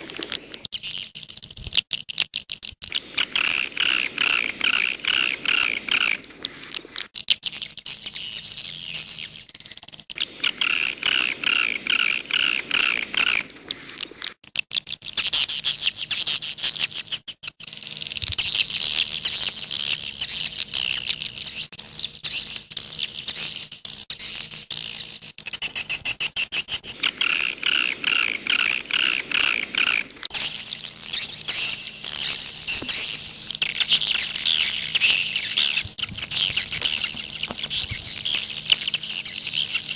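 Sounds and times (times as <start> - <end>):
fast dry clicks: 0.0 - 21.7, 22.6 - 39.9
faint steady hum: 26.8 - 39.9.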